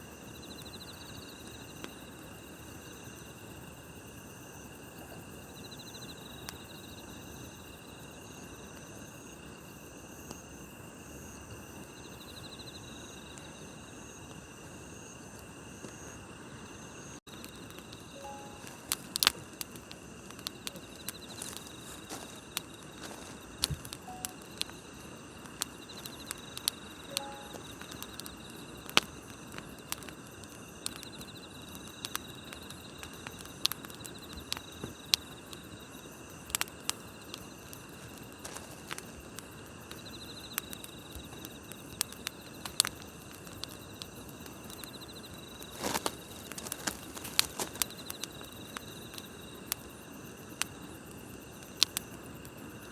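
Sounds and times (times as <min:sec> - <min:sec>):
insects chirring: 0:00.0 - 0:52.9
wood campfire crackling: 0:00.0 - 0:52.9
sharp fire pops: 0:17.4 - 0:35.4.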